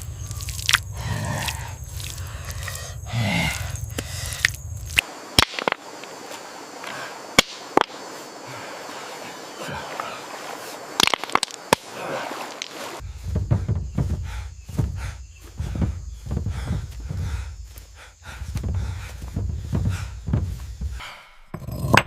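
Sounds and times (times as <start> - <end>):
sharp knocks and cracks: 5.0 - 5.8, 11.0 - 11.9.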